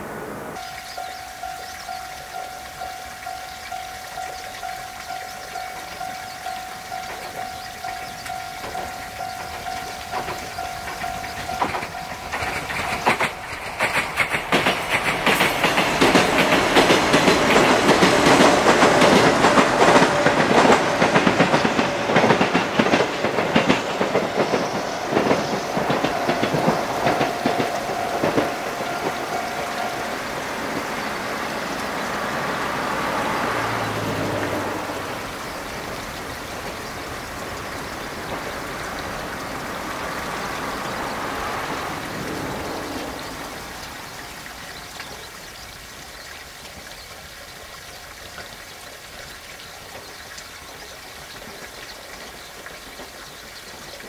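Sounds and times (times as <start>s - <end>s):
train wheels clacking over rail joints: 0.6s - 43.9s.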